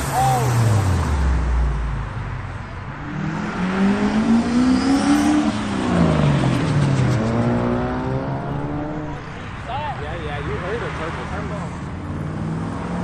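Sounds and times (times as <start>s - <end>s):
car engine accelerating: 0.0s - 9.6s.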